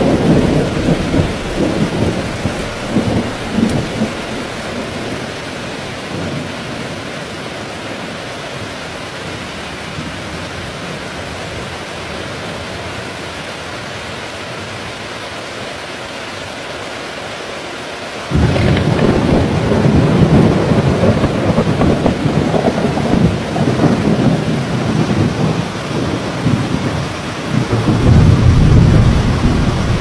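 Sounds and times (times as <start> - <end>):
thunder rumbling: 0.0 - 6.8, 18.3 - 30.0
heavy rain: 0.0 - 30.0.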